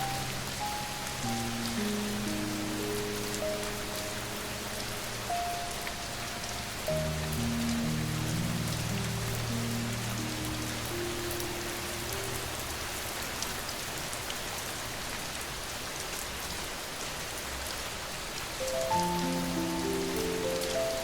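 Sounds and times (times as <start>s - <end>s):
soft piano notes: 0.0s - 13.7s, 18.6s - 21.0s
steady rain falling: 0.0s - 21.0s.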